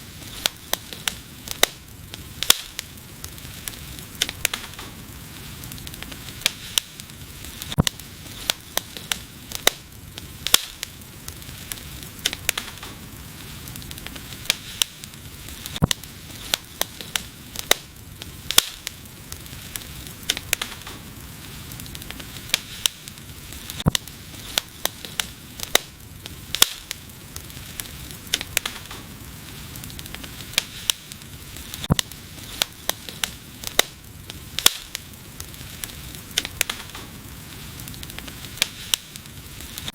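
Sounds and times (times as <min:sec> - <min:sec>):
hiss of burning: 0:00.0 - 0:39.9
wood fire crackling: 0:00.0 - 0:39.9.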